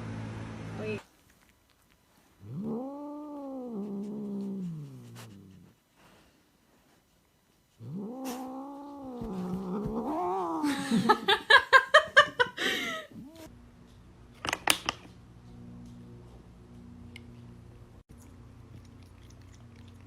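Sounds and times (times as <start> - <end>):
cat caterwauling: 7.8 - 10.8.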